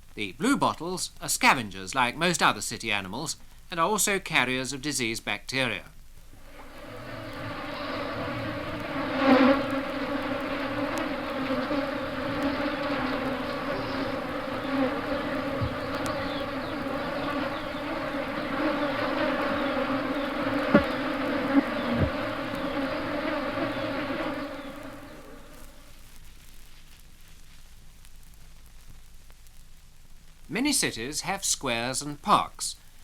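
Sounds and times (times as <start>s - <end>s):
fly buzzing in flight: 6.4s - 26.0s
sharp ticks: 8.8s - 21.1s.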